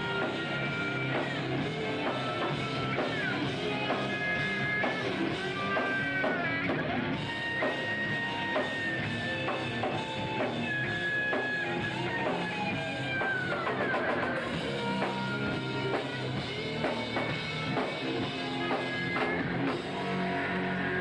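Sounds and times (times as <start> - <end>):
drum kit steady beat: 0.0 - 21.0.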